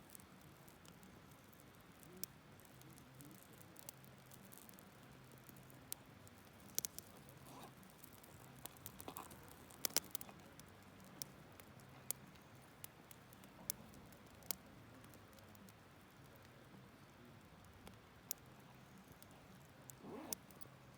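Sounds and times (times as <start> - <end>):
fire popping and snapping: 0.0 - 16.8, 17.4 - 20.9
wood campfire crackling: 0.0 - 20.9.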